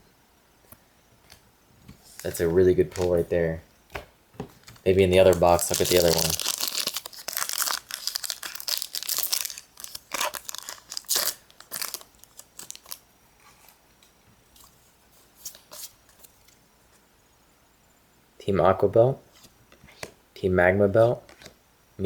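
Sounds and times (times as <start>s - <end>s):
foil wrapper crinkling and tearing: 4.8s - 13.0s.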